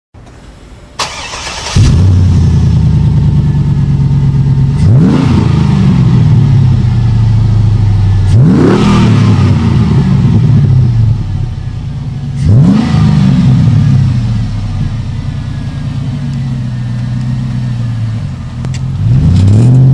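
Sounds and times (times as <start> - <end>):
engine idling: 0.2 - 19.1
engine cranking and starting: 1.0 - 2.3
engine revving: 1.0 - 11.4, 12.3 - 19.9.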